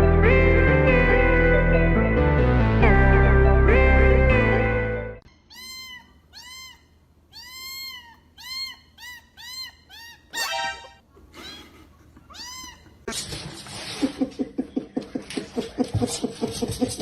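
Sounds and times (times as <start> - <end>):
background music: 0.0 - 5.2, 10.4 - 11.0
cat meowing: 5.5 - 10.5, 12.3 - 13.0.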